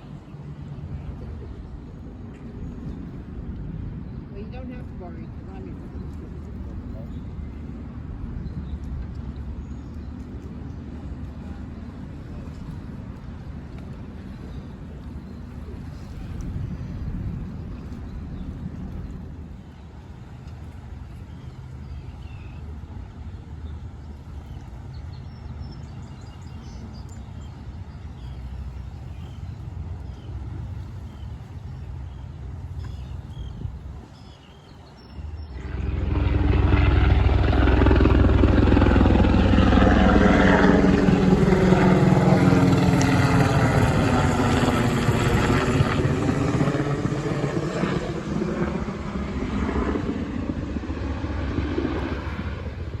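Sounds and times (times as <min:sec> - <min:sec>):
low rumble: 0:35.1 - 0:53.0
diesel locomotive engine drone: 0:35.3 - 0:44.6.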